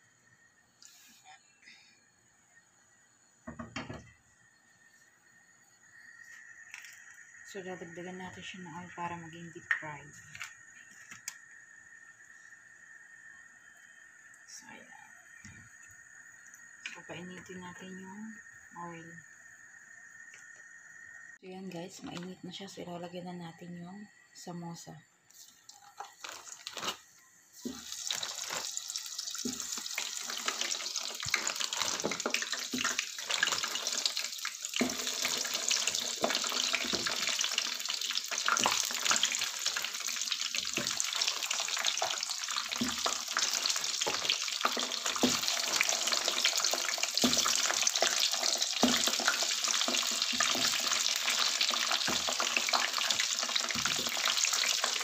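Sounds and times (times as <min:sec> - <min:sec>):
food deep-frying in hot oil: 0:03.3 - 0:22.7, 0:25.3 - 0:55.0
oil popping and crackling: 0:25.6 - 0:55.0.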